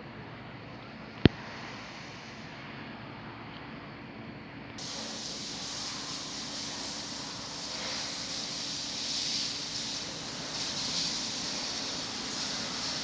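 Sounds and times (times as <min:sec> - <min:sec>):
hiss: 0:04.8 - 0:13.0
train humming: 0:04.8 - 0:13.0.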